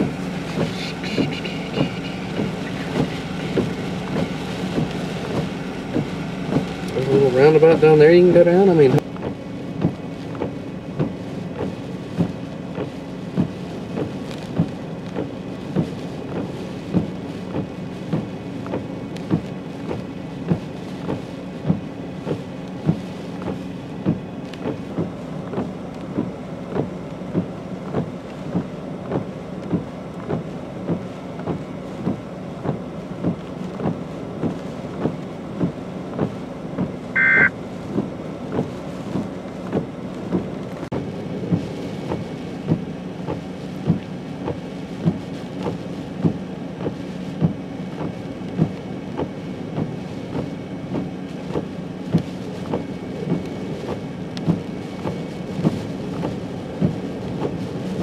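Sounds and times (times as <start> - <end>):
rain: 0.0 - 58.0
vehicle hum: 0.0 - 58.0
wind: 0.0 - 58.0
short high beep: 37.2 - 37.5.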